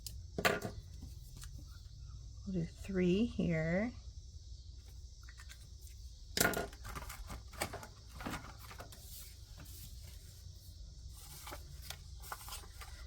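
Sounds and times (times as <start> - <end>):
paper bills rustling: 6.8 - 13.0.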